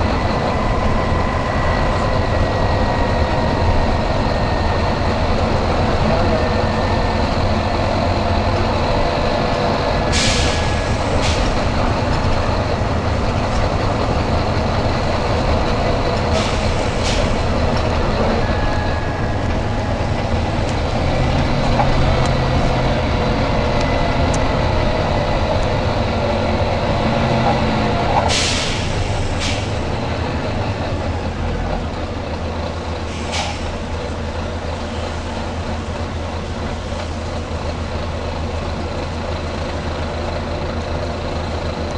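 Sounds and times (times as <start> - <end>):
bus diesel engine running: 0.0 - 41.9
compressed air hisses: 10.1 - 11.6, 28.3 - 29.8, 33.1 - 33.8.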